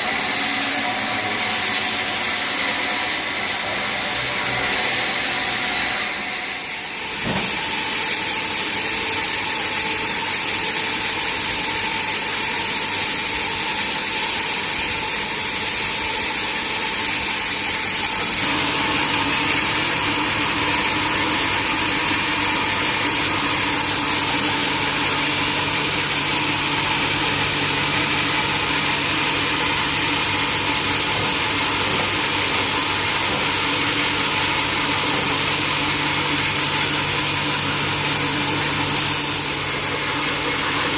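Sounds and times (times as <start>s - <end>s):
sawmill machinery hissing: 0.0s - 10.2s, 11.2s - 40.9s
knock: 7.2s - 7.7s.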